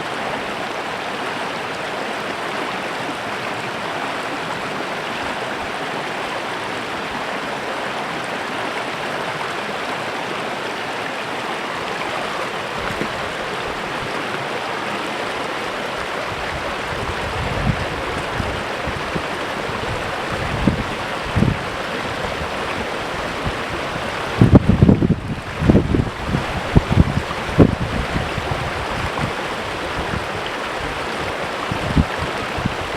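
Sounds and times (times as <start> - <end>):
creek water babbling: 0.0 - 32.9
wind rumble on microphone: 16.0 - 32.9.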